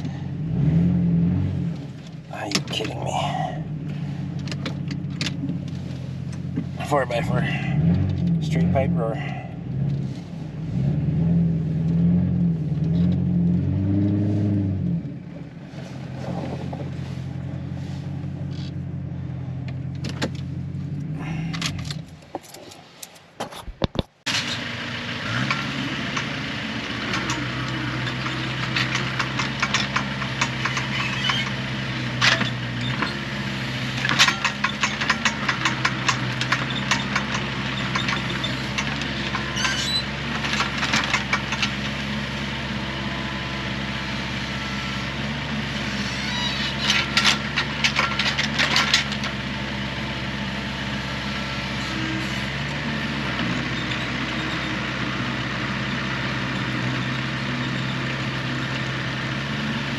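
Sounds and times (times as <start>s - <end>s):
vehicle engine starting and idling: 0.0s - 59.9s
rattling clicks: 19.6s - 24.6s, 25.4s - 26.4s, 27.0s - 33.3s, 33.9s - 42.0s, 46.2s - 49.4s.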